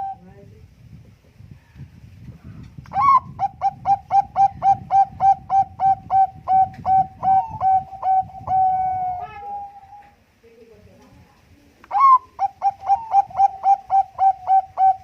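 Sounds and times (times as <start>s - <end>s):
dove cooing: 0.0s - 0.2s, 2.9s - 10.2s, 11.9s - 15.0s.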